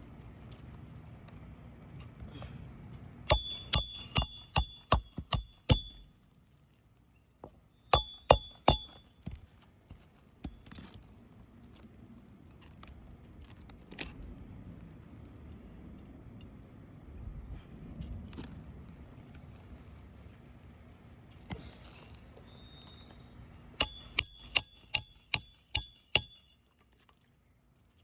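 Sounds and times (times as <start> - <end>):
hammer striking metal: 3.3 - 6.1, 8.0 - 9.3, 23.8 - 26.5.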